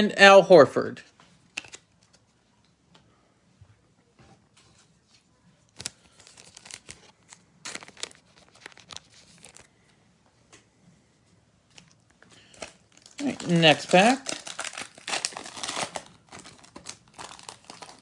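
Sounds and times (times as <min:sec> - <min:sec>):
foil wrapper crinkling and tearing: 0:05.8 - 0:09.7, 0:12.4 - 0:18.0.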